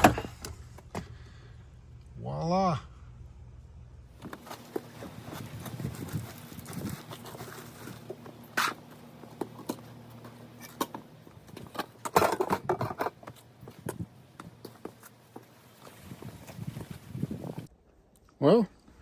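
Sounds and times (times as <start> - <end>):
rustling: 4.2 - 17.7.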